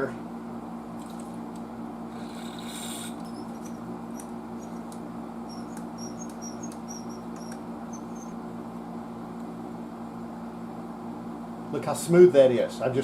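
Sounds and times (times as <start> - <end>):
low electrical hum: 0.0 - 13.0
potentiometer squeaky chirps: 2.7 - 8.4.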